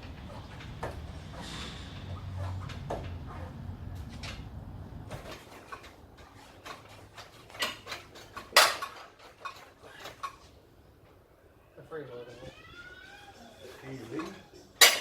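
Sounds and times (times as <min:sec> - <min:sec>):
metal tools clicking and clanking: 0:05.1 - 0:10.5, 0:13.8 - 0:15.0.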